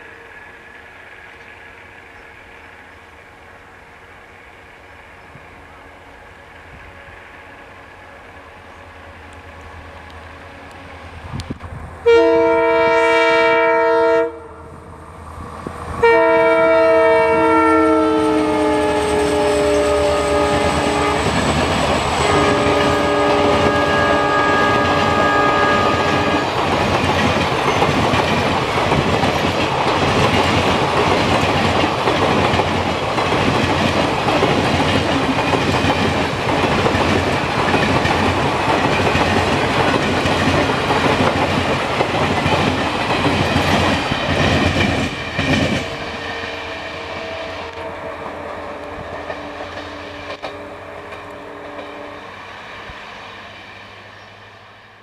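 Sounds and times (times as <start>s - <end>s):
train coaches clickety-clack rumble: 0.0s - 54.6s
locomotive horn blasts: 12.0s - 14.7s, 16.0s - 21.4s, 22.1s - 26.6s, 45.8s - 52.3s.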